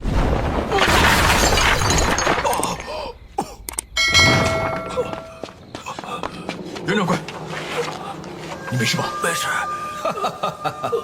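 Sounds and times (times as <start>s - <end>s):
breaking and shattering crash: 0.0s - 2.9s
sharp hit with metallic ring: 4.0s - 5.3s.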